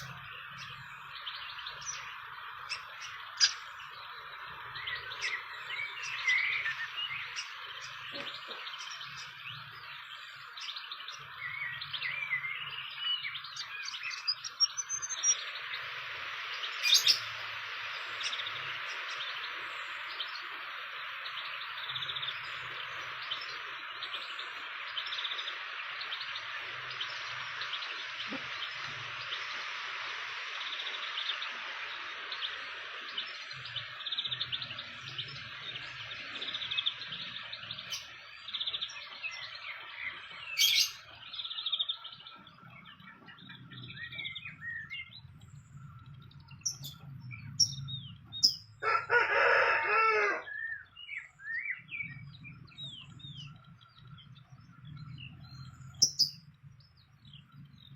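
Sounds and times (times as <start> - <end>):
insect drone: 0.0 - 50.4
rooster crowing: 48.8 - 50.8.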